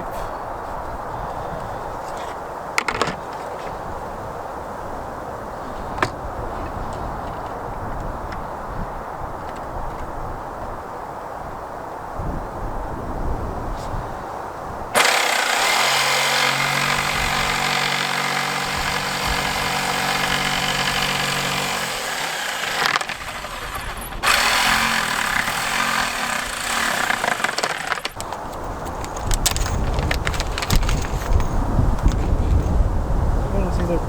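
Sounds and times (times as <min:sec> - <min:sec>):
electric jigsaw cutting wood: 0:15.0 - 0:28.2.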